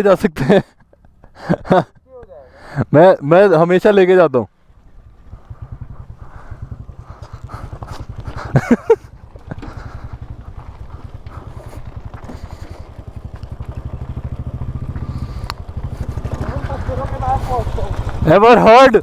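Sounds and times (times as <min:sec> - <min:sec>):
motorcycle engine thumping: 0:04.7 - 0:18.4.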